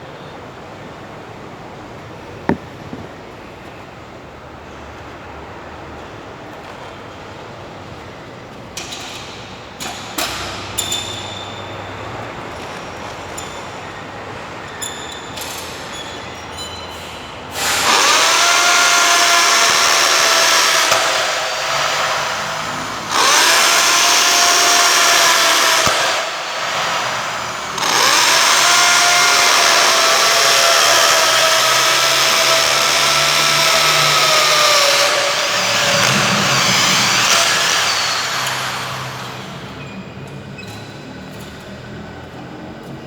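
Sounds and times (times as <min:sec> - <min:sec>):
electric drill whining: 0:02.5 - 0:03.2, 0:17.6 - 0:39.8.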